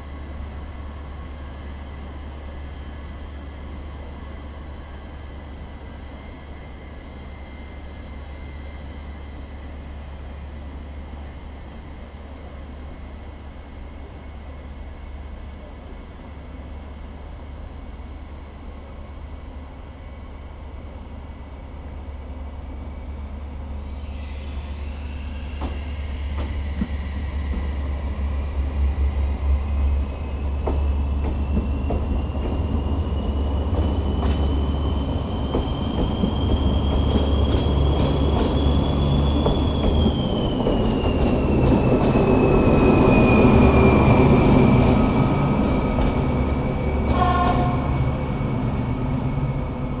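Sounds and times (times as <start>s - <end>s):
low train rumble: 0.0s - 50.0s
train wheels squealing: 22.7s - 50.0s.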